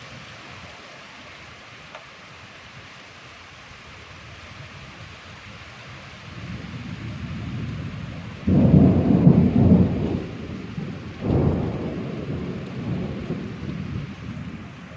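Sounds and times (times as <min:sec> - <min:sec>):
rain hissing: 0:00.0 - 0:14.9
thunder rumbling: 0:06.3 - 0:14.9.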